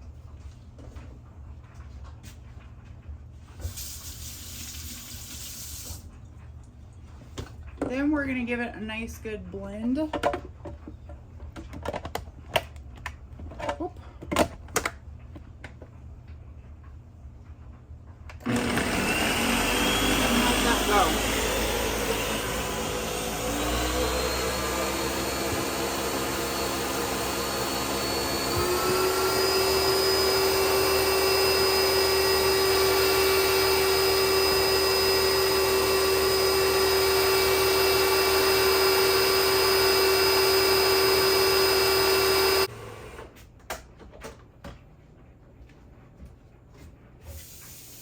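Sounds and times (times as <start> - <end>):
electric blender running: 18.4 - 43.4.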